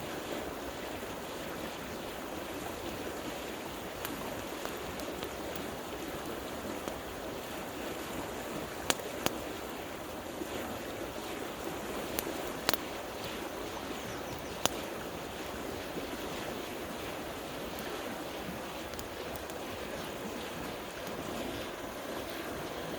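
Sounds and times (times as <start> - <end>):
river rushing: 0.1 - 22.9
campfire crackling pops: 3.9 - 7.6, 8.4 - 9.8, 11.2 - 21.7.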